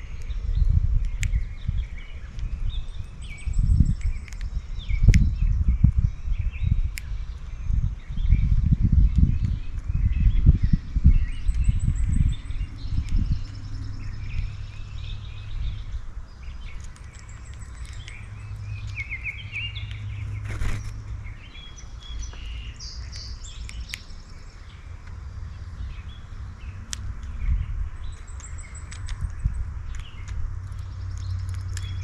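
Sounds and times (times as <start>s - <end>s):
low rumble: 0.0s - 32.0s
songbirds chirping and trilling: 0.0s - 32.0s
sharp clicks: 1.0s - 1.7s, 11.4s - 15.1s, 16.6s - 21.2s, 22.2s - 24.3s, 28.0s - 32.0s.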